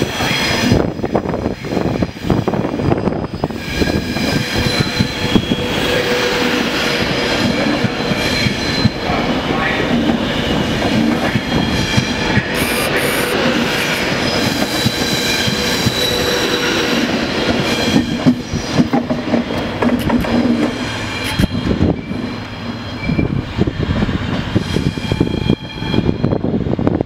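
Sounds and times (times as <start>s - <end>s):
electric train high whine: 0.0s - 27.0s
train wheels clicking over rail joints: 9.8s - 23.3s.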